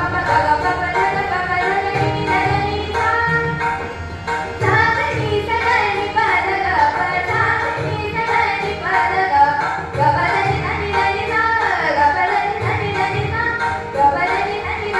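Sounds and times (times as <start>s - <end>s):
musical accompaniment: 0.0s - 14.9s
girl singing: 4.6s - 14.9s.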